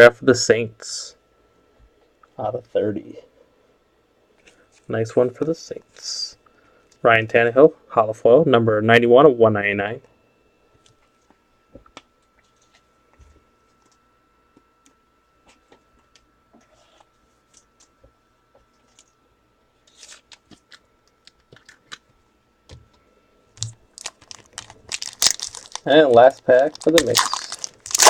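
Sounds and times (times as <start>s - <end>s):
trading cards clicking and rustling: 23.6s - 28.0s.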